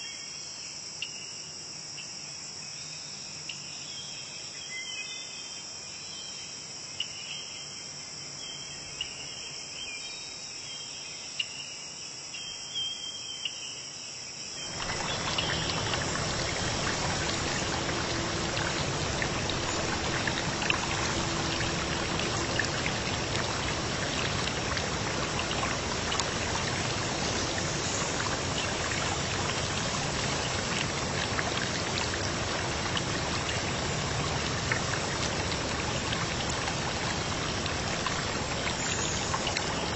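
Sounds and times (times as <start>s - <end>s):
insects chirping: 0.0s - 39.9s
water rushing: 14.6s - 39.9s
water splashes and drips: 14.6s - 39.9s.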